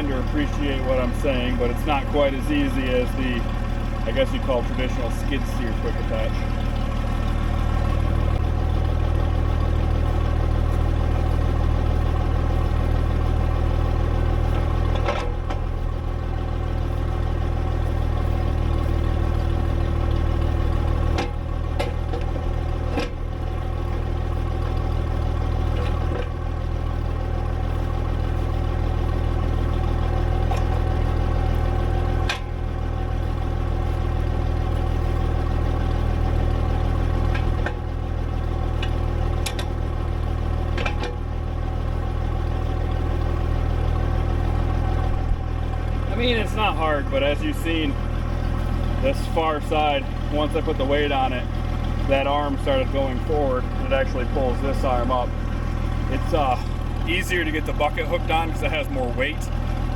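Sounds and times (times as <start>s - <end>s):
tractor engine idling: 0.0s - 59.9s
metal clunks: 14.4s - 16.0s, 20.9s - 26.5s, 32.2s - 32.7s, 37.0s - 37.9s, 38.7s - 39.8s, 40.7s - 41.3s.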